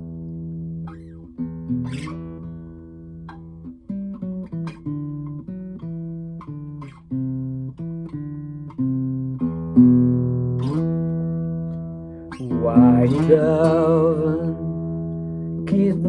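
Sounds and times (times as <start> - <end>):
guitar picking a melody: 0.0 - 16.0
guitar chord ringing: 9.8 - 16.0.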